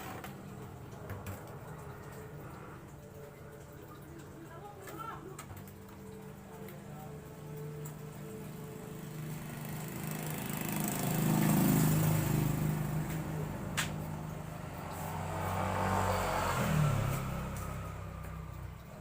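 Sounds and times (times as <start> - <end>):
vehicle engine: 5.7 - 19.0.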